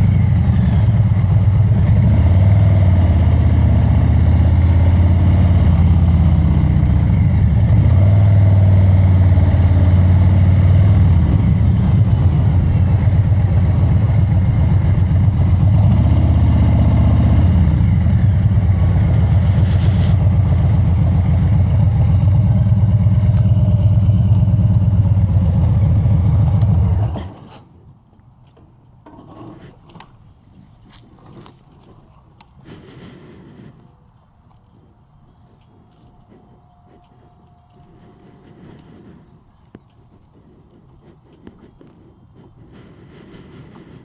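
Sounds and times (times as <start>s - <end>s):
motorcycle engine running: 0.0s - 27.5s.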